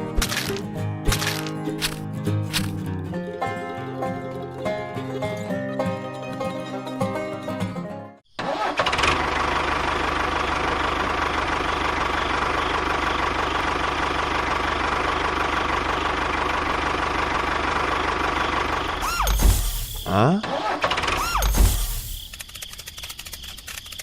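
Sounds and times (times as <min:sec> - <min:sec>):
engine idling with knocking: 0:09.1 - 0:19.8.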